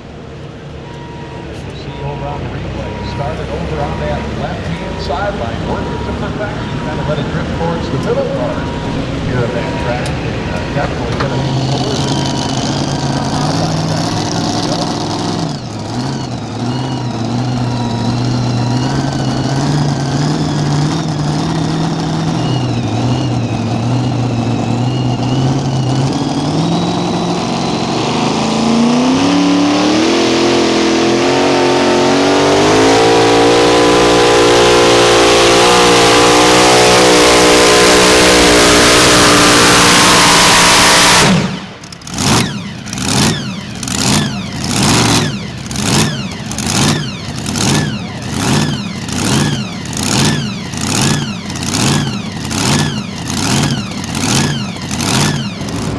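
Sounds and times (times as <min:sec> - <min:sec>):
tractor engine revving under load: 0:00.0 - 0:55.9
throttle blips: 0:29.7 - 0:55.9.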